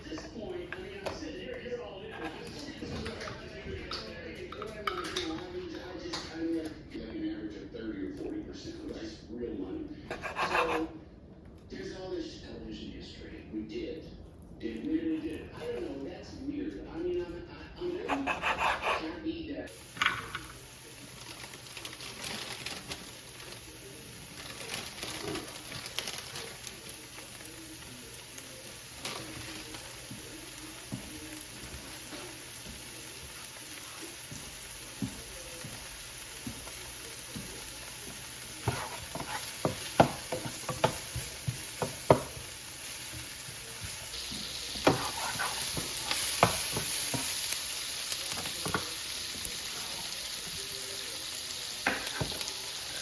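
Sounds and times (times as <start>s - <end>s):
food sizzling in a pan: 19.7s - 53.0s.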